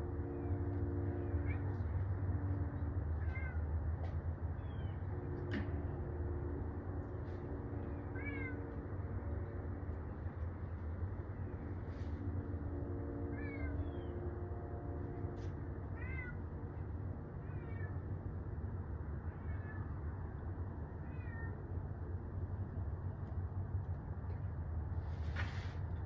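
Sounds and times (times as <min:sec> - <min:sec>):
steady low rumble: 0:00.0 - 0:26.0
cat meowing: 0:03.2 - 0:03.6, 0:08.0 - 0:08.7, 0:16.0 - 0:16.4, 0:17.4 - 0:18.0, 0:19.3 - 0:19.9, 0:21.0 - 0:21.6.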